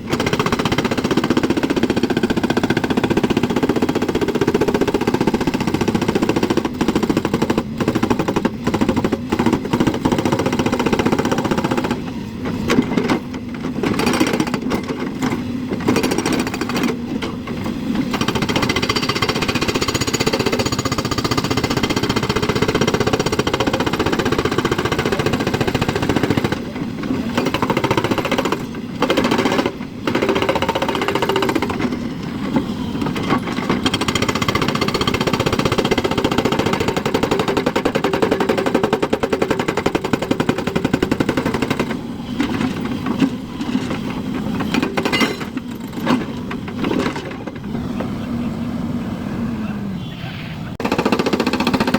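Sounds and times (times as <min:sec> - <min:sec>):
excavator diesel engine clattering: 0:00.0 - 0:49.5.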